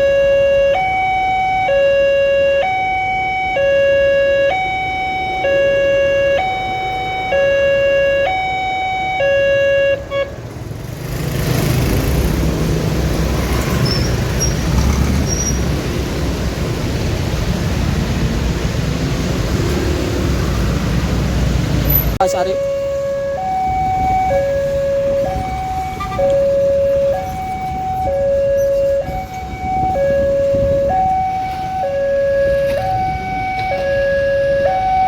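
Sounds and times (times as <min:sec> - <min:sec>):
level crossing two-tone alarm: 0:00.0 - 0:10.2, 0:22.2 - 0:35.0
road traffic noise: 0:00.0 - 0:35.0.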